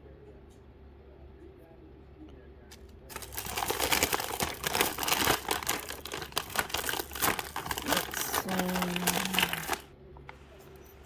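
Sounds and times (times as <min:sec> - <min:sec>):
packaging crinkling: 0:03.1 - 0:09.9.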